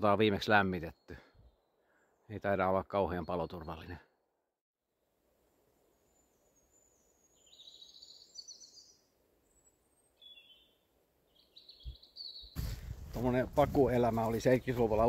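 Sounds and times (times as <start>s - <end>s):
bird chirping: 5.8s - 12.6s.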